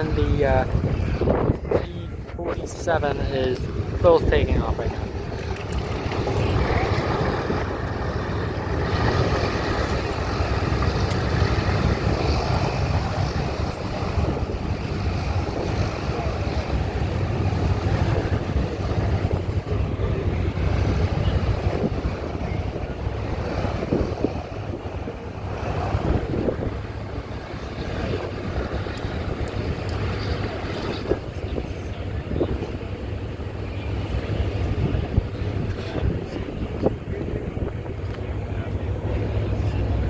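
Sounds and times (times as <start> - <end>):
distant piston engines rumbling: 0.0 - 40.0
wind buffeting microphone: 0.0 - 40.0.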